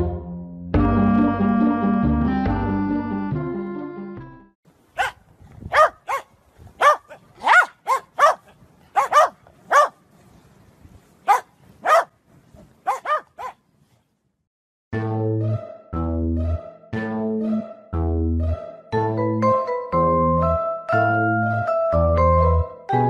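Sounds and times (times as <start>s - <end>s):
music: 0.0s - 4.6s, 15.0s - 23.0s
dog yapping: 5.0s - 10.0s, 11.3s - 12.1s, 12.8s - 13.6s.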